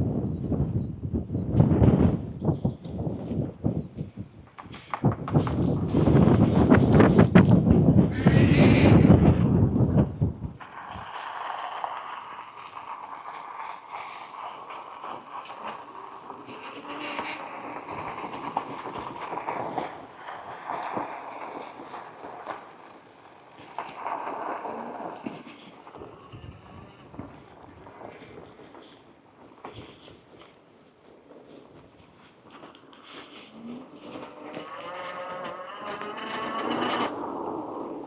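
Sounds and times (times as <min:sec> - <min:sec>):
bike tyres rolling on ground: 0:00.0 - 0:38.0
bike clicks and rattles: 0:09.4 - 0:38.0.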